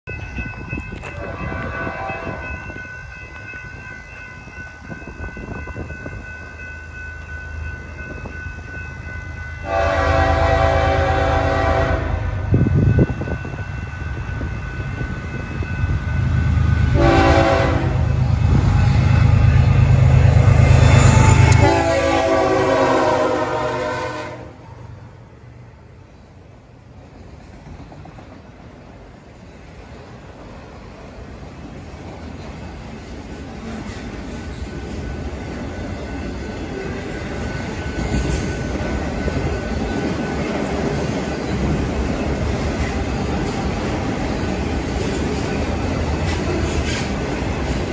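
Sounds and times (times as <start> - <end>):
diesel locomotive engine rumble: 0.1 - 47.9
locomotive horn blasts: 1.1 - 2.5, 9.6 - 12.4, 16.9 - 18.2, 20.9 - 24.8.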